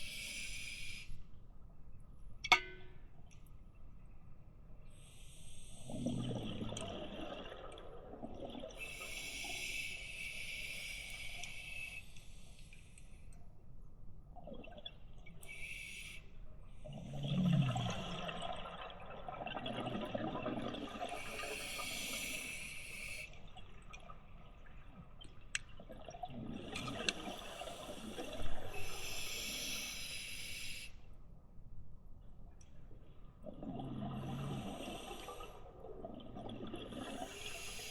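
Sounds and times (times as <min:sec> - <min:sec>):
exhaled bubbles gurgling underwater: 0:05.6 - 0:10.8, 0:14.2 - 0:30.8, 0:33.3 - 0:37.9.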